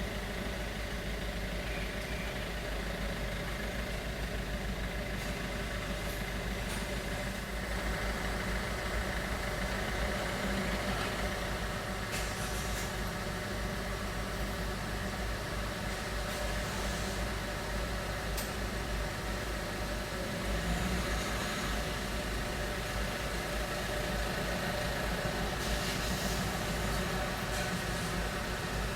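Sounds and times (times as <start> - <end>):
vehicle engines rumbling: 0.1 - 28.9.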